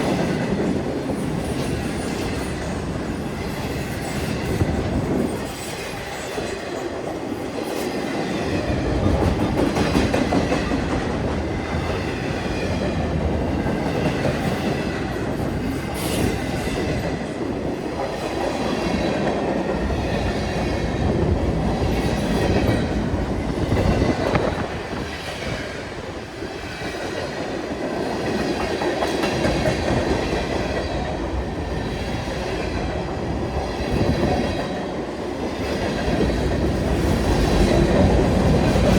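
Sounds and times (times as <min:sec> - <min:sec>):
train wheels rumbling on rail: 0:00.0 - 0:38.9
clacking at rail joints: 0:03.4 - 0:17.3, 0:26.6 - 0:38.9.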